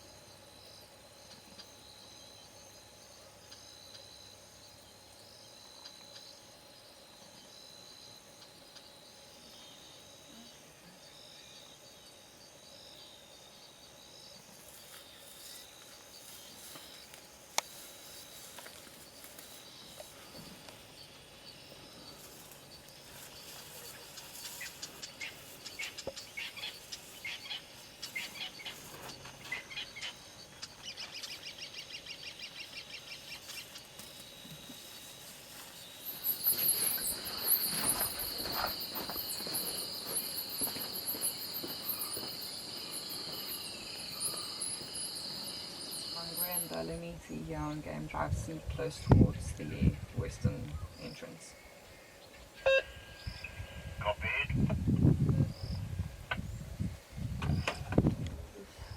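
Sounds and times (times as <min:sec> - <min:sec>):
insects chirping: 0:00.0 - 0:58.9
high-pitched insect buzz: 0:00.2 - 0:30.4, 0:31.9 - 0:47.1
birds calling: 0:14.8 - 0:35.0, 0:35.8 - 0:47.2.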